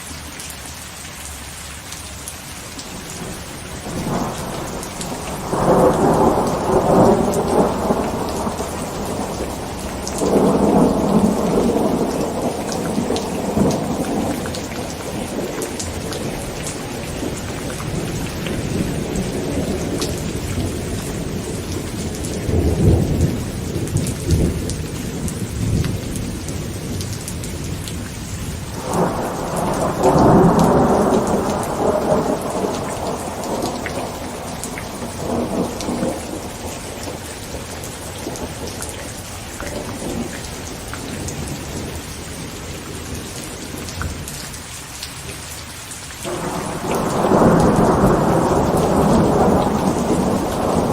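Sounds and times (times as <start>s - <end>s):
heavy rain on a tent: 0.0s - 50.9s
thunder rumbling: 2.9s - 44.4s, 46.2s - 50.9s
loud thunderclap: 3.2s - 27.8s, 28.7s - 38.8s, 46.3s - 50.9s.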